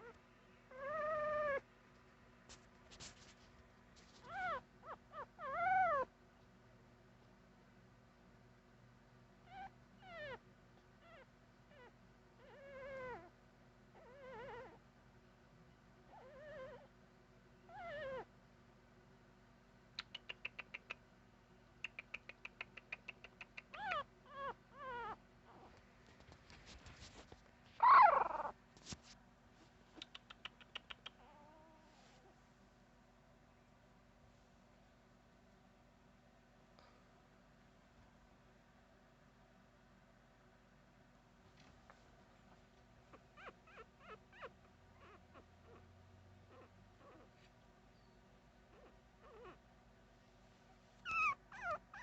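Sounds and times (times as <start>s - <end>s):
puppy whimpering: 0.0s - 1.6s, 4.2s - 6.1s, 9.4s - 10.4s, 11.0s - 13.3s, 14.0s - 14.8s, 16.1s - 16.9s, 17.7s - 18.3s, 23.6s - 25.8s, 27.8s - 28.6s, 30.8s - 32.0s, 43.1s - 45.9s, 46.5s - 47.3s, 48.7s - 49.6s, 51.0s - 52.0s.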